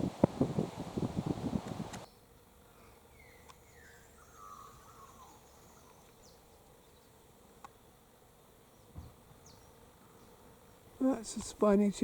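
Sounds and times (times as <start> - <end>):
bird whistles and warbles: 3.2 - 6.0.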